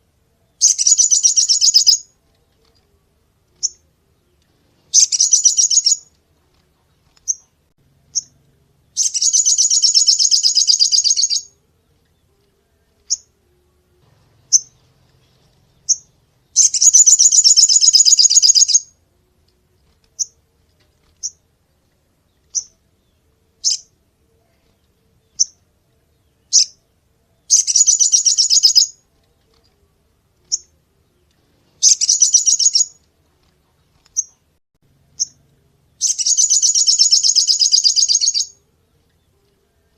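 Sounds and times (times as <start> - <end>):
bird chirps: 0.4 - 6.2, 6.8 - 19.0, 19.8 - 20.4, 21.1 - 21.4, 22.2 - 33.1, 33.7 - 34.4, 35.0 - 39.9
bird rattling trills: 0.6 - 2.0, 4.9 - 6.1, 9.0 - 11.5, 15.9 - 18.9, 36.0 - 38.5.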